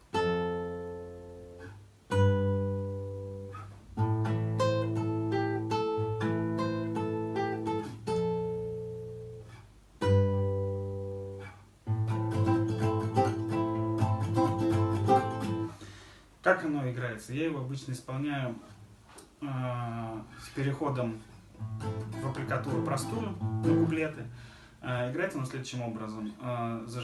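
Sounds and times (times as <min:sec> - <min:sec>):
acoustic guitar playing: 0:00.0 - 0:16.1, 0:20.0 - 0:25.4.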